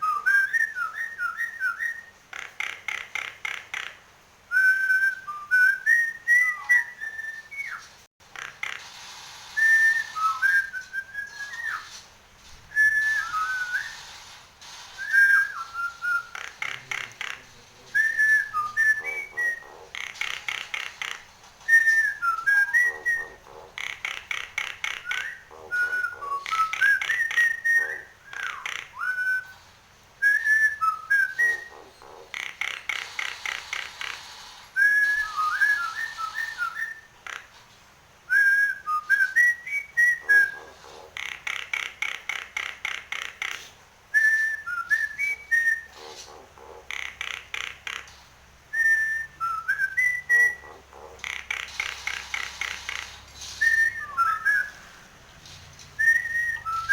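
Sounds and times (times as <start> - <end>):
bird whistled gliding notes: 4.5 - 7.9, 9.6 - 12.0, 12.7 - 14.2, 15.0 - 16.4, 18.0 - 19.8, 21.7 - 23.5, 24.8 - 29.6, 30.2 - 32.0, 34.7 - 37.1, 38.3 - 41.1, 44.2 - 46.4, 48.7 - 50.9, 51.8 - 55.1, 56.0 - 56.9.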